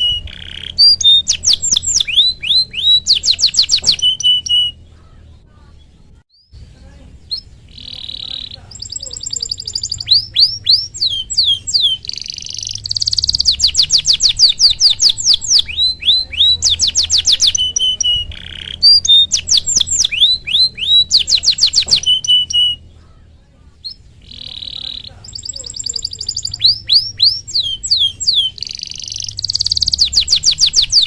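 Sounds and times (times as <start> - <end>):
canary singing: 0.0 - 31.0.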